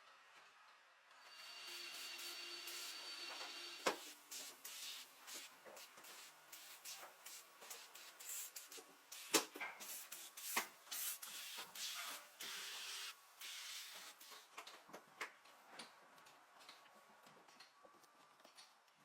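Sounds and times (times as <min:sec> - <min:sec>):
steady hiss: 0:03.9 - 0:14.5.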